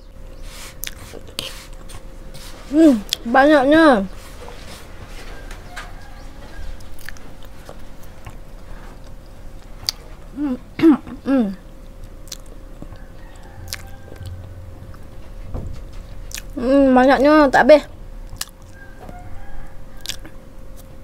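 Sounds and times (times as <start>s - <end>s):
short hummed vocal sounds: 0.0s - 18.7s
wet chewing sounds: 0.3s - 2.1s, 6.8s - 10.2s, 11.8s - 14.3s, 16.2s - 16.6s, 18.2s - 18.8s, 20.0s - 21.0s.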